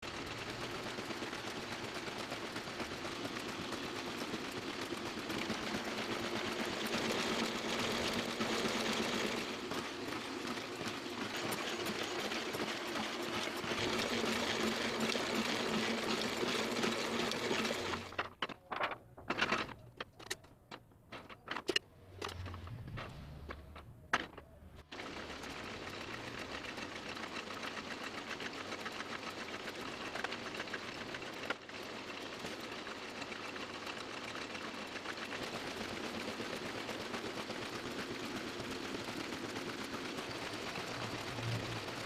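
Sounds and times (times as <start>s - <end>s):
printing press clattering: 2.7s - 21.8s
uneven mechanical knocks: 18.2s - 24.6s
low hum: 21.8s - 24.8s.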